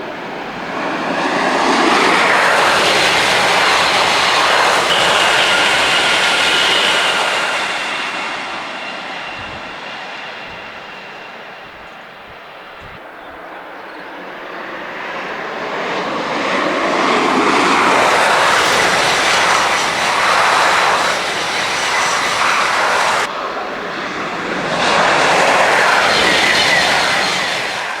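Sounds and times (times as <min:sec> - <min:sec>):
high-speed train rushing roar: 0:00.0 - 0:28.0.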